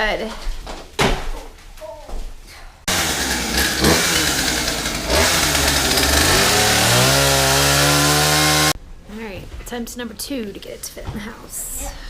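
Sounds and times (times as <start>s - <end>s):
chainsaw cutting wood: 2.9s - 8.8s.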